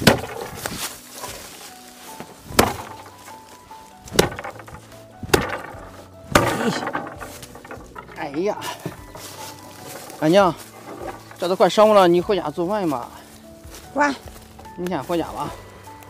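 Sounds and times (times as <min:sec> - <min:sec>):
axe chopping wood: 0:00.0 - 0:01.0, 0:02.4 - 0:11.5.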